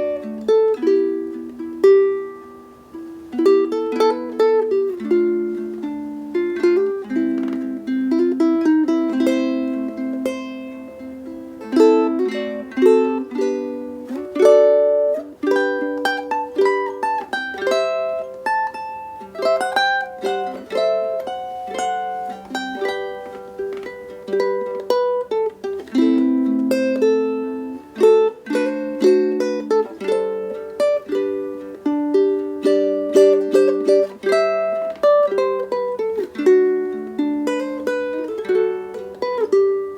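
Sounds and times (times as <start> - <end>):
ukulele fingerstyle melody: 0.0 - 39.9.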